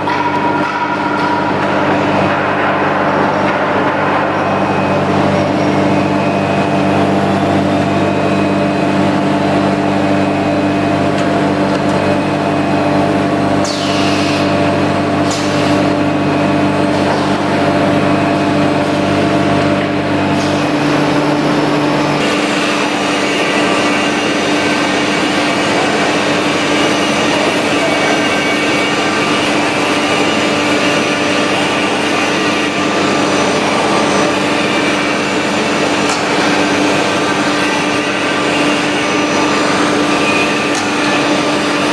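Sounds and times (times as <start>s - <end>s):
high machine whine: 0.0s - 41.9s
router machine hum: 4.5s - 25.8s.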